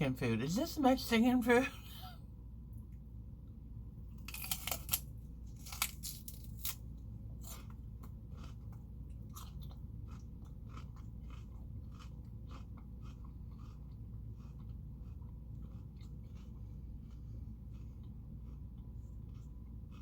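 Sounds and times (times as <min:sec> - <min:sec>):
celery crunching while chewed: 0:04.2 - 0:20.0.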